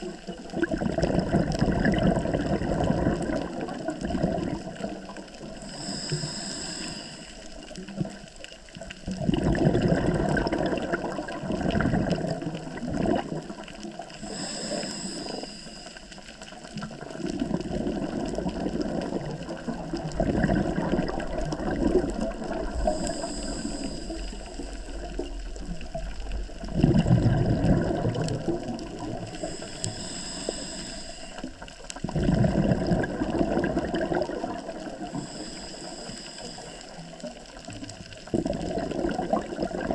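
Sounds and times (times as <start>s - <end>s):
exhaled bubbles gurgling: 0.0s - 39.9s
regulator inhale hiss: 5.5s - 8.2s, 14.1s - 16.6s, 22.7s - 25.3s, 29.1s - 31.8s, 34.8s - 37.4s.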